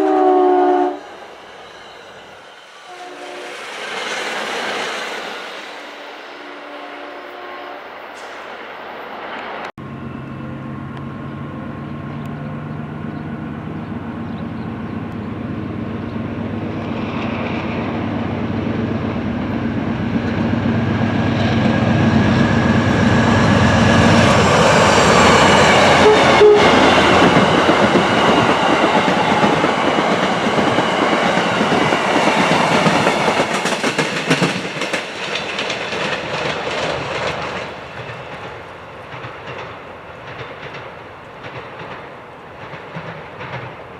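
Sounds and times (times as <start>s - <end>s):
diesel train passing: 0.0s - 43.9s
train wheels clicking over rail joints: 19.0s - 43.9s.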